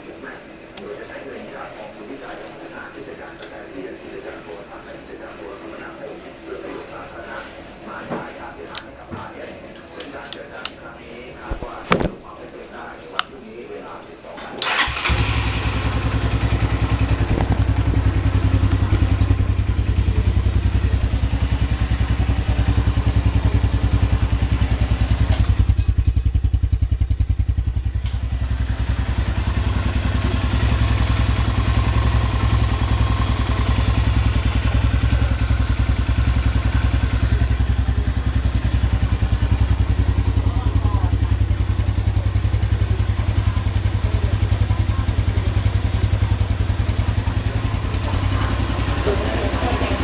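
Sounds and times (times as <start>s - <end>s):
motorcycle engine starting and idling: 14.6s - 50.0s.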